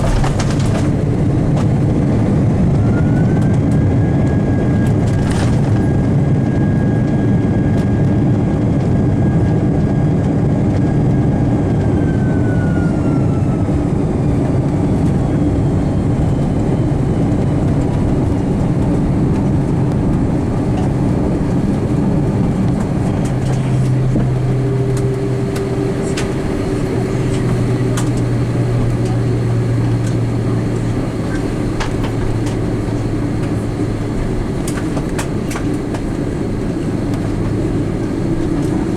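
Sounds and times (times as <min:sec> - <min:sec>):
high engine whine: 0:00.0 - 0:38.9
rumble of engines and wheels: 0:00.0 - 0:38.9
steady low hum: 0:13.4 - 0:38.9.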